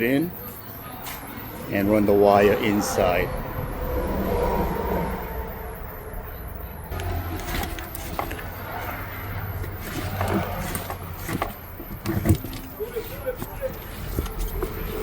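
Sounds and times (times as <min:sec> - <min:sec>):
wire scraping and clicking: 0:06.9 - 0:15.0.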